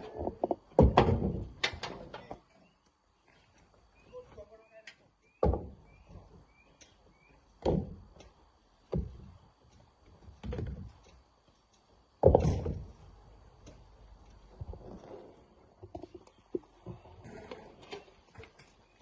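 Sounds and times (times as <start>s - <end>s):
heavy thuds of rocks: 12.2s - 13.0s.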